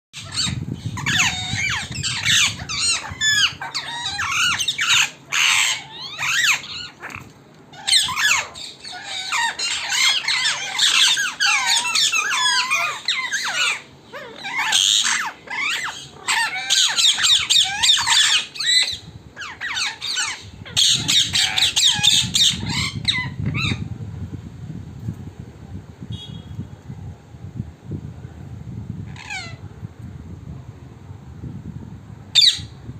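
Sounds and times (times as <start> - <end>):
parrots squawking and chattering: 0.2 - 23.9, 29.1 - 29.6, 32.3 - 32.7.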